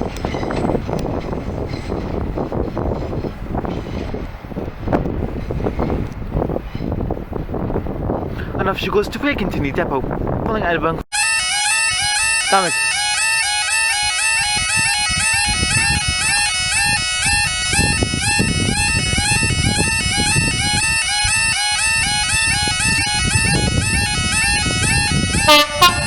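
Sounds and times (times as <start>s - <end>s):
bagpipes playing melody: 11.1s - 26.0s.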